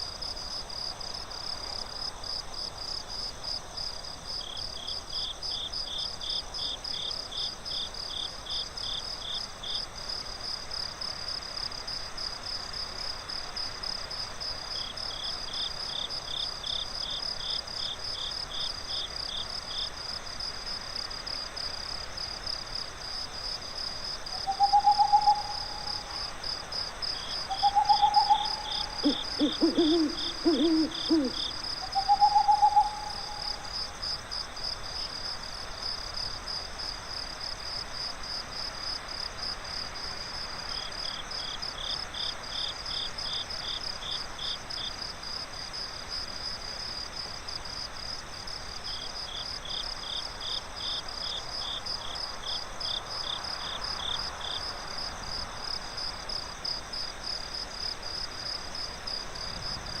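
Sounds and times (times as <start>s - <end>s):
crickets chirping: 0.0s - 60.0s
owl hoot: 24.3s - 26.2s, 27.4s - 33.7s
low-pitched insect chirps: 24.3s - 26.3s, 27.1s - 33.9s.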